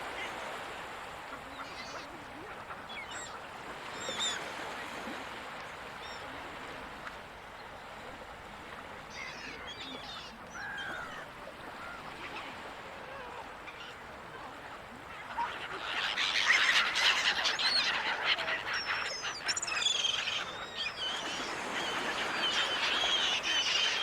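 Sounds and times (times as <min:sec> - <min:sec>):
gulls calling: 0:09.1 - 0:24.0
ocean surf: 0:10.6 - 0:16.0.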